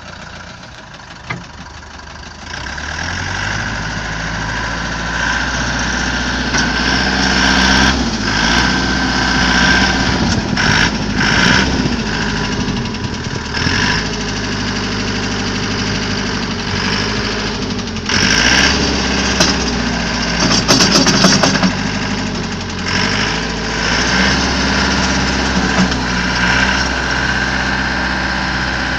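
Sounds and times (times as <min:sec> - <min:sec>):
tractor diesel engine running: 0:00.0 - 0:28.9
bursts of clatter: 0:16.8 - 0:27.6.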